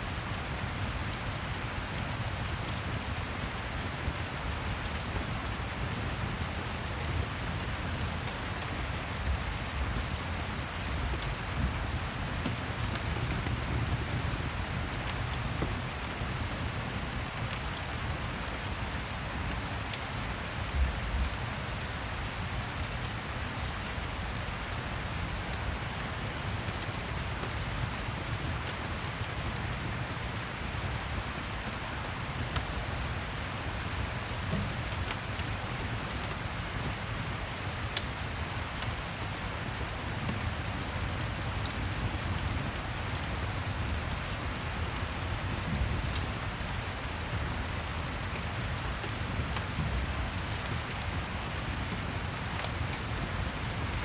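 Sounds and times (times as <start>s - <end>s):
steady rain: 0.0s - 54.0s
fireplace crackles: 48.8s - 54.0s.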